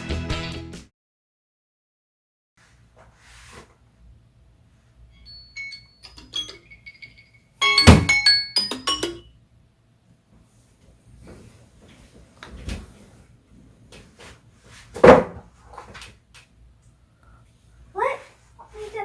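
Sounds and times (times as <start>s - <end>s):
ringing notes: 5.2s - 9.3s.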